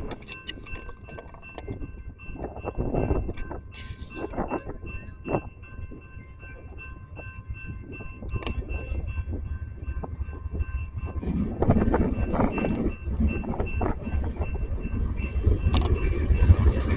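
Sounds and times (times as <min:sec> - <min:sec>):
train rumbling on rails: 0:00.0 - 0:16.9
knocks of train wheels: 0:10.9 - 0:16.9.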